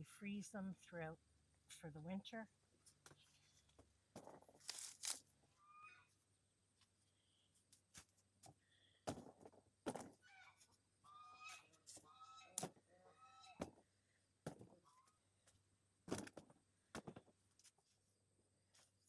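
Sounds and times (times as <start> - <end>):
plants snapping and rustling: 4.5 - 5.3.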